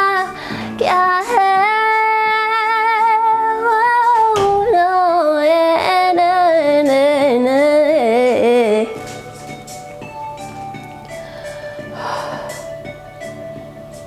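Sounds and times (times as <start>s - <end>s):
woman singing wordless vocalise: 0.0s - 9.0s.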